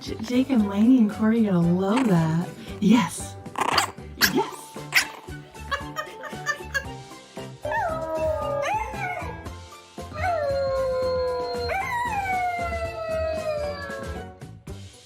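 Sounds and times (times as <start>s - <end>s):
dog howling: 7.6s - 9.5s, 10.1s - 14.3s.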